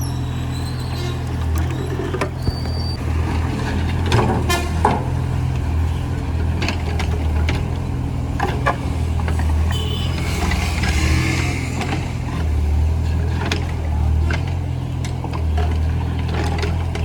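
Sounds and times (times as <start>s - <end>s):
digger engine running: 0.0s - 17.0s
machine parts knocking and clanking: 11.0s - 17.0s.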